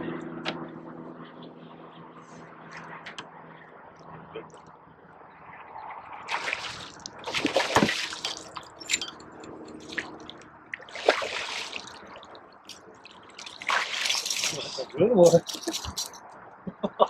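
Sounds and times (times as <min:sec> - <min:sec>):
fish thrashing and splashing: 0:06.3 - 0:16.2.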